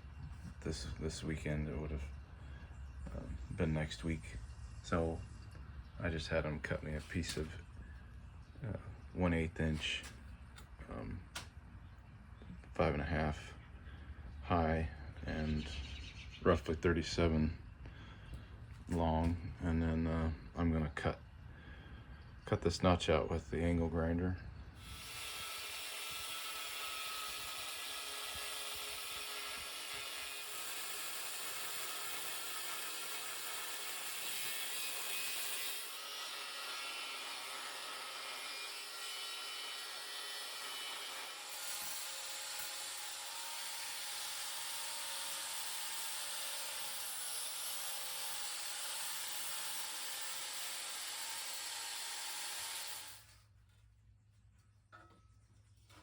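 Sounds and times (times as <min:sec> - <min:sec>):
angle grinder cutting steel: 0:24.8 - 0:53.4.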